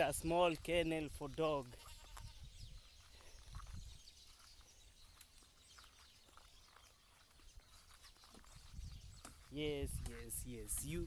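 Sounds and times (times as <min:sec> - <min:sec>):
faint bird chirps: 0:01.8 - 0:09.7.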